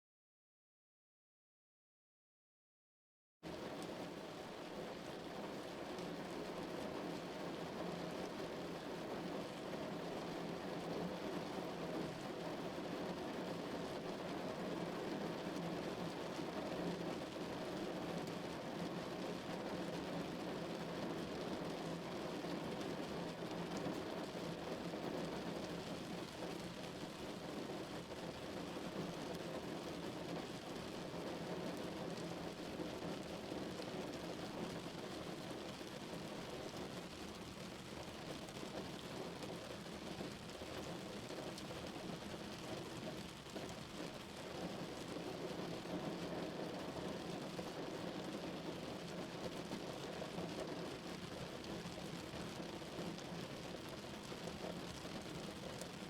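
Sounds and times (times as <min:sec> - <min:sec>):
rain pattering on car: 0:03.5 - 0:56.0.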